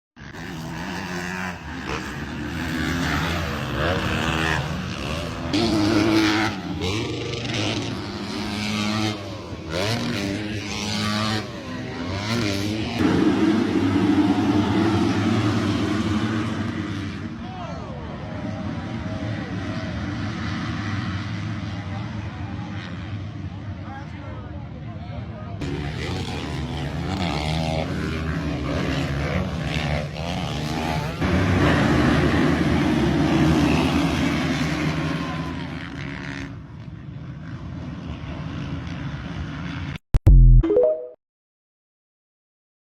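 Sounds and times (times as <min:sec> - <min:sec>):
motocross bike engine revving: 0:00.2 - 0:17.4, 0:25.6 - 0:36.5.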